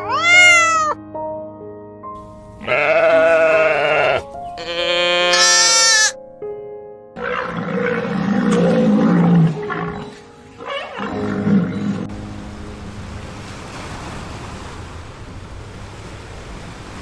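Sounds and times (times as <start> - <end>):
background music: 0.0 - 14.4
low rough roar-like animal call: 7.2 - 12.1.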